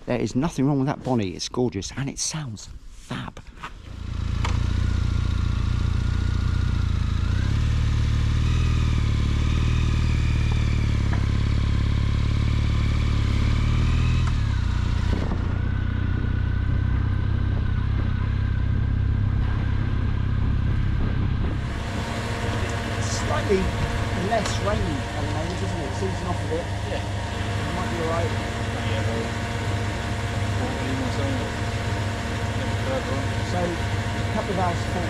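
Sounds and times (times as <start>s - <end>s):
motorcycle engine running: 3.8s - 35.0s.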